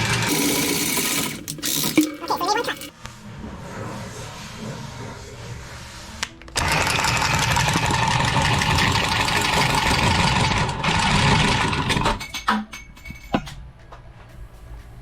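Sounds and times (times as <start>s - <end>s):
tubing cutter cutting pipe: 0.0s - 2.9s.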